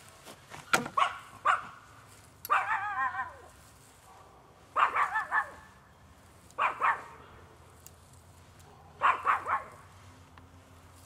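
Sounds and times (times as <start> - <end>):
animal calling high and wavering: 2.5 - 3.6.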